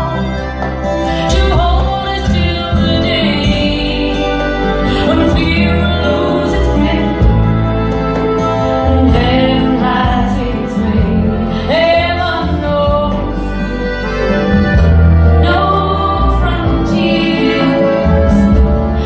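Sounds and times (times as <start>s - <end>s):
recorded song with singing: 15.4s - 19.0s.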